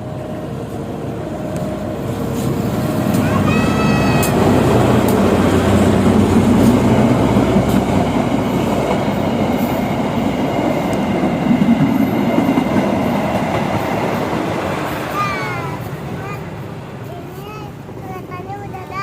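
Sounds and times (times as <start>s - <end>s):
train rumbling over bridge: 0.0s - 19.0s.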